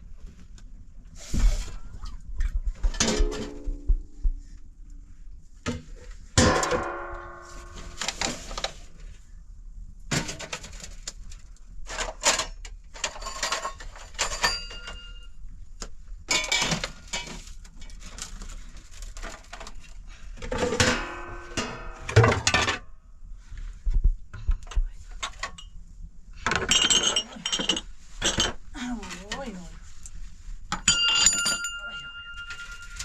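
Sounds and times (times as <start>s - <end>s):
knocks and ringing clinks: 14.2s - 15.3s, 30.7s - 33.0s.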